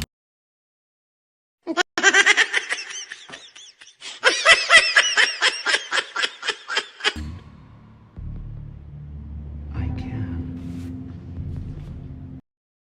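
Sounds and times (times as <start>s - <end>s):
person laughing hard: 1.7s - 7.2s.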